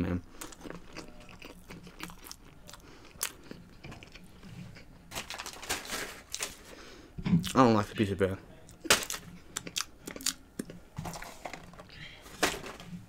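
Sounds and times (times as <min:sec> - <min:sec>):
person chewing food: 0:00.2 - 0:05.1, 0:08.6 - 0:11.7.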